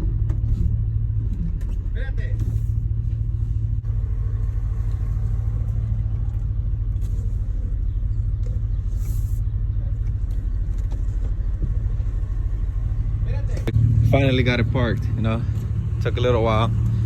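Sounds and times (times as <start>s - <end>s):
pickup engine idling: 0.0s - 17.0s.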